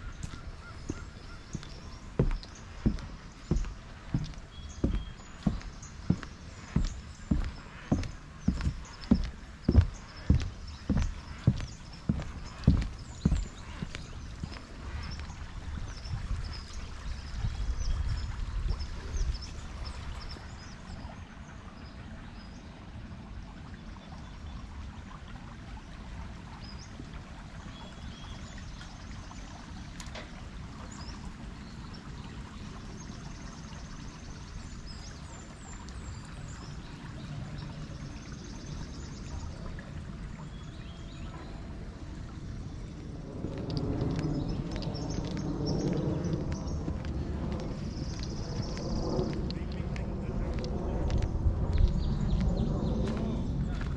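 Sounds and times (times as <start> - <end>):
small birds chirping: 0.0 - 21.1, 42.9 - 53.9.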